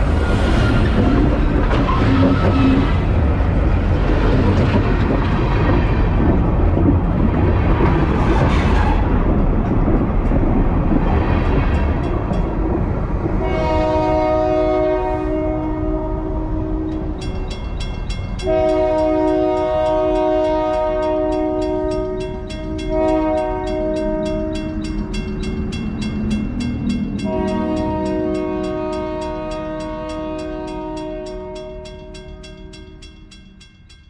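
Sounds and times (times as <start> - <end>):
train wheels rumbling on rails: 0.0 - 34.0
locomotive horn: 13.4 - 17.2, 18.4 - 24.8, 27.2 - 32.8.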